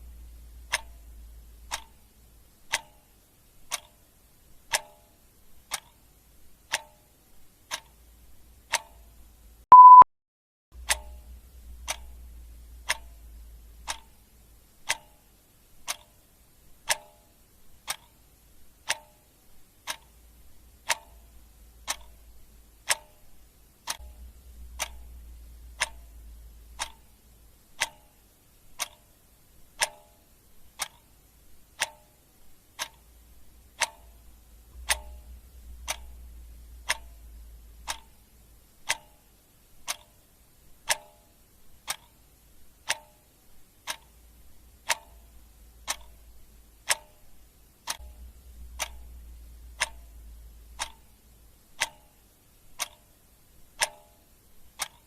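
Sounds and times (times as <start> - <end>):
clock ticking: 0.0 - 10.0, 10.8 - 55.0
short beep: 9.7 - 10.1.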